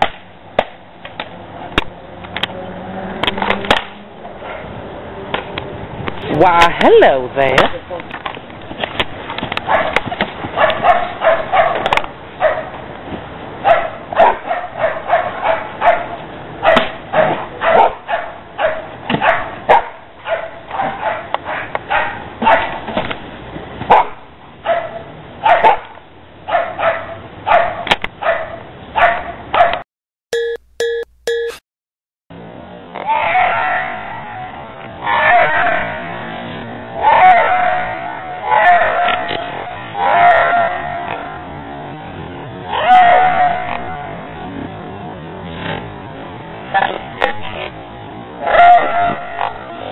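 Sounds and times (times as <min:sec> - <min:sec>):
dog barking: 0:04.4 - 0:04.7, 0:09.7 - 0:10.0, 0:10.6 - 0:12.7, 0:13.6 - 0:22.8, 0:23.9 - 0:25.9, 0:26.5 - 0:29.8, 0:35.1 - 0:36.0, 0:37.0 - 0:39.3, 0:40.0 - 0:41.0, 0:48.5 - 0:49.6
short electronic beeps: 0:30.3 - 0:31.6.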